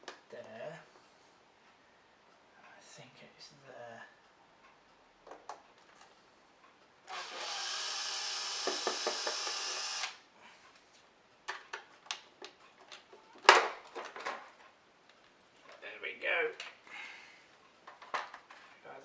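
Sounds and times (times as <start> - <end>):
power screwdriver running: 7.1 - 10.2.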